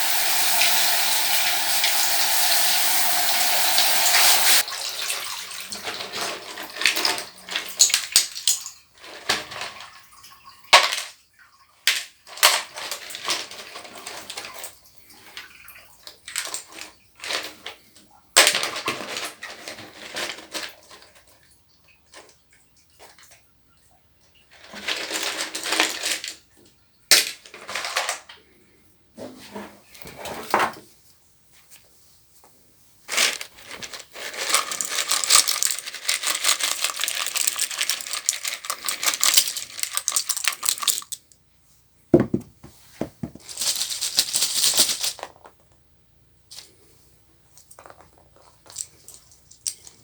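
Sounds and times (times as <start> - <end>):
plastic clatter: 42.2 - 45.8, 47.5 - 50.0.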